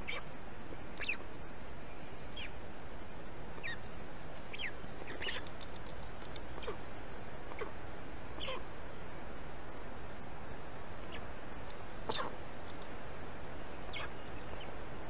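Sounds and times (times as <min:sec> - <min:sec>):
high falling bird calls: 0:00.0 - 0:02.6, 0:03.6 - 0:08.7, 0:11.0 - 0:11.4, 0:12.0 - 0:15.0
steady background hiss: 0:00.0 - 0:15.0.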